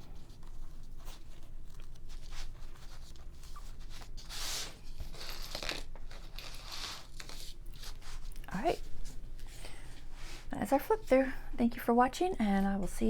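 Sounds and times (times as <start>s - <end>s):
paper pages rustling: 0.0s - 9.6s.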